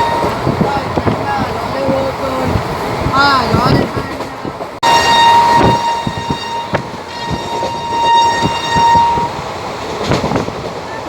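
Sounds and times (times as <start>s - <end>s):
train horn: 0.0s - 0.6s, 4.8s - 9.5s
train rumble and wheel clacks: 0.0s - 11.0s.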